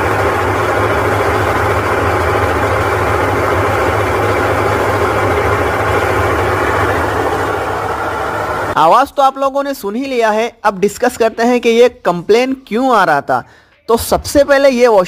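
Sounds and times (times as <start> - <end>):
washing machine spinning: 0.0 - 8.8.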